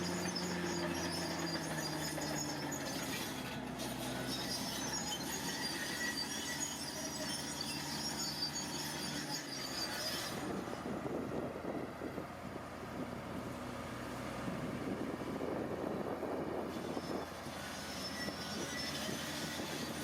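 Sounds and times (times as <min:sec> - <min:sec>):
high squealing and scraping: 0:00.0 - 0:11.5, 0:15.9 - 0:20.0
diesel engine running: 0:00.0 - 0:20.0.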